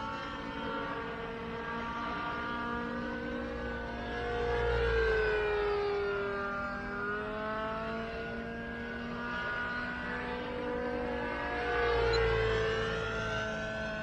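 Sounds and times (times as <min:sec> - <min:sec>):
model helicopter engine and rotor: 0:00.0 - 0:14.0.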